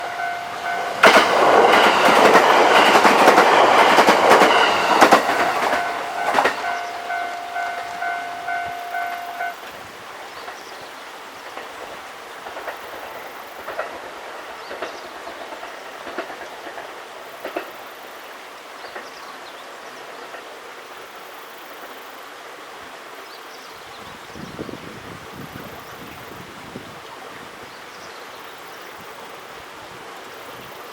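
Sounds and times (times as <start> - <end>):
steady high tone: 0.0 - 9.7
wheels clicking over rail joints: 0.0 - 9.8, 10.4 - 18.2, 18.8 - 20.6
train wheels rushing on rail: 0.0 - 23.0.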